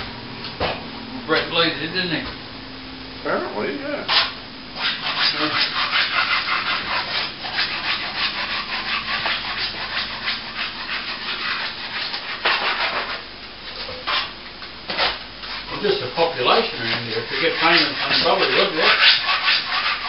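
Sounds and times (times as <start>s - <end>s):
plastering tool scraping plaster: 4.1s - 13.2s, 14.9s - 20.0s.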